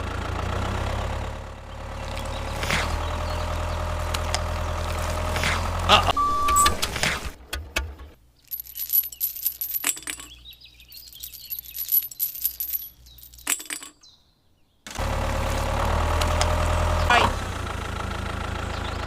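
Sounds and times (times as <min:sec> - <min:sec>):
steady motor running: 0:00.0 - 0:06.0
small hard objects clinking: 0:08.4 - 0:14.2.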